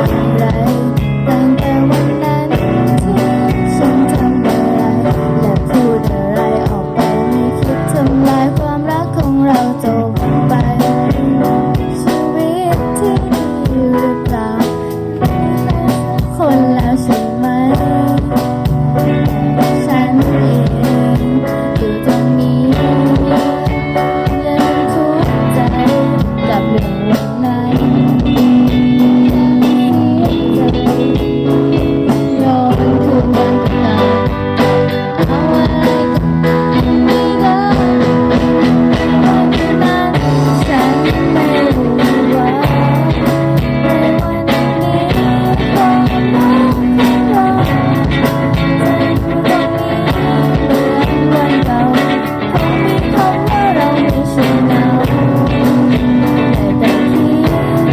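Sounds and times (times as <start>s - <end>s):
blues rock band playing: 0.0s - 57.9s
electric guitar: 0.0s - 57.9s.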